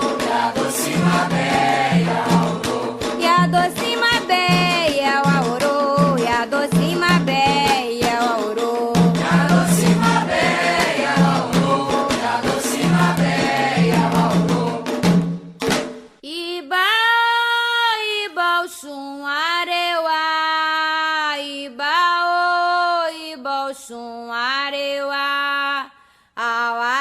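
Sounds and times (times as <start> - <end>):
group chanting: 0.0 - 3.2, 9.2 - 14.9
hand drums: 0.0 - 16.2.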